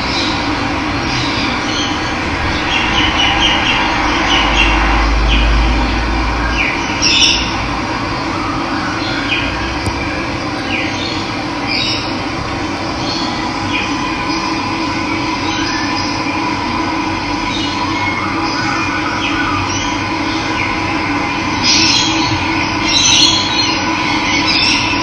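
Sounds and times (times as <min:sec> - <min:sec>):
low rumble: 0:00.4 - 0:08.6, 0:09.4 - 0:17.5
birds chirping: 0:09.0 - 0:16.2.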